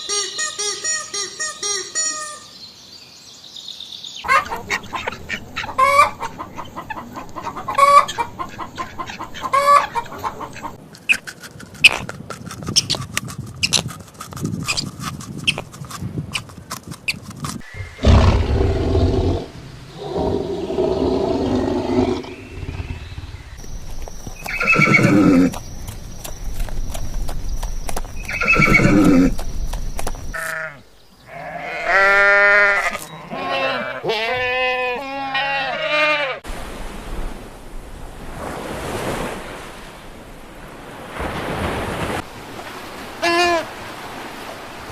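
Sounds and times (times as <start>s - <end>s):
farm animals calling: 4.2s - 10.8s, 17.5s - 25.7s, 28.2s - 29.4s, 30.3s - 36.4s.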